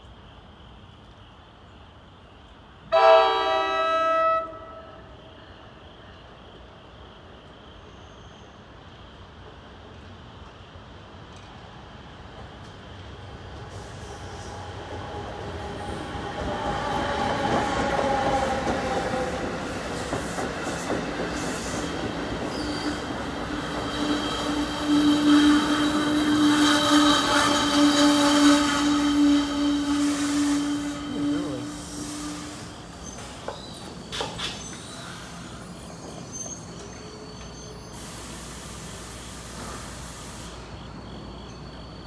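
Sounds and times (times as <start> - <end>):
passenger train rumble: 0.0 - 42.0
train wheel squeal: 4.2 - 42.0.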